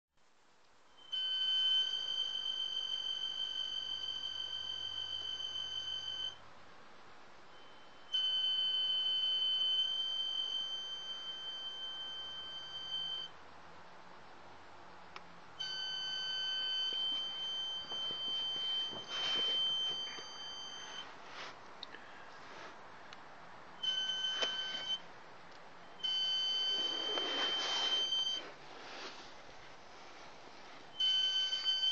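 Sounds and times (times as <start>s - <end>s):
high-pitched warning tone: 7.5s - 13.4s, 15.6s - 21.2s, 23.8s - 25.1s, 25.8s - 28.6s, 30.9s - 31.9s
rustle: 26.7s - 30.9s.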